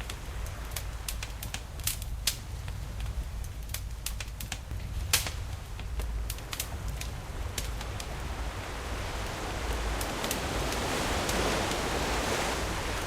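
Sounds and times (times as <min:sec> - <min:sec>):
wood fire crackling and popping: 0:00.0 - 0:08.2, 0:09.9 - 0:11.8
ocean waves rumbling: 0:00.0 - 0:13.0.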